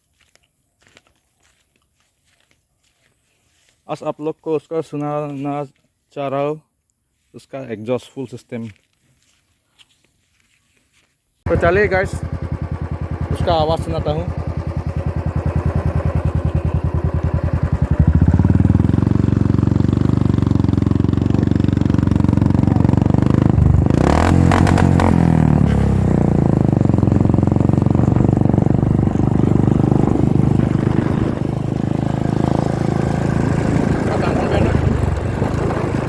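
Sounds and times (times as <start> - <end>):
motorcycle engine thumping: 11.5 - 36.0.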